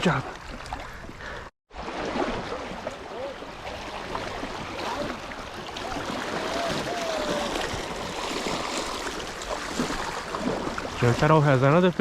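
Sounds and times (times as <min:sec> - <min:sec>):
river rushing: 0:02.0 - 0:11.4.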